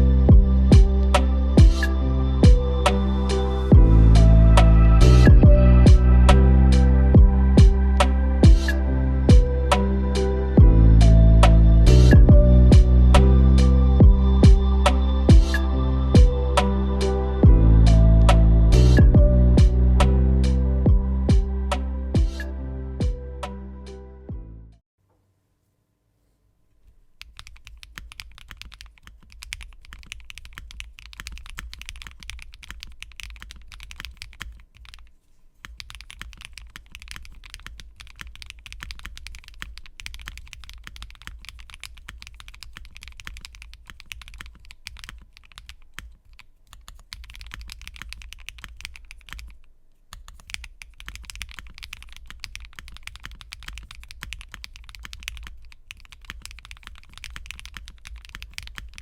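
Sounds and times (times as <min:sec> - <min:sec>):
mechanical keyboard typing: 0:27.2 - 0:59.0.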